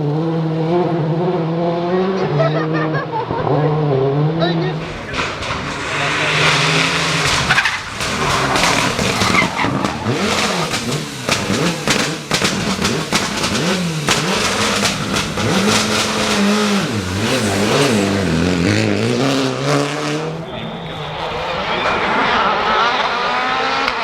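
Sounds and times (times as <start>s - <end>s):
rally car engine revving: 0.0s - 24.0s
tyres sliding on surface: 4.8s - 12.0s.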